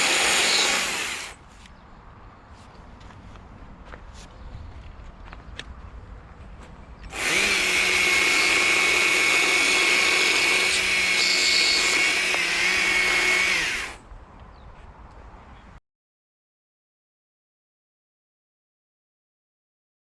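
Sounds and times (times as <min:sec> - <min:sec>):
power tool high whine: 0:00.0 - 0:01.4, 0:07.1 - 0:14.0.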